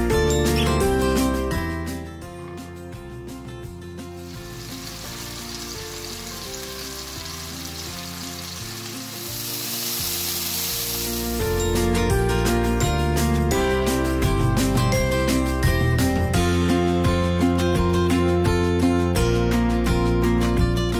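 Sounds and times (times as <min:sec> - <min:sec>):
background music: 0:00.0 - 0:20.9
chicken sizzling in a pan: 0:04.2 - 0:11.9.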